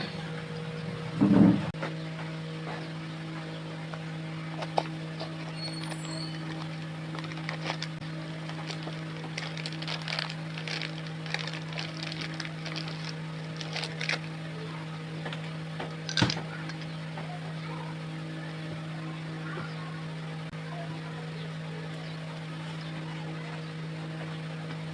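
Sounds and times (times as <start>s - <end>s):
steady electrical hum: 0.0s - 24.9s
small metal parts clicking: 6.4s - 14.3s.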